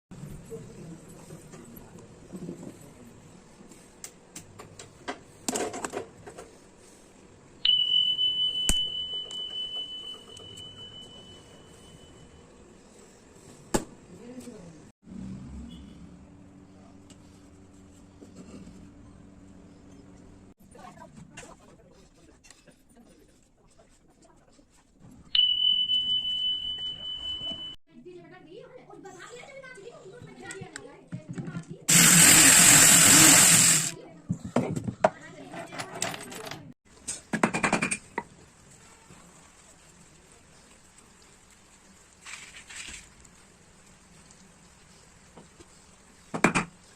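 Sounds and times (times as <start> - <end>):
high ringing tone: 7.6 - 12.5, 25.4 - 27.8.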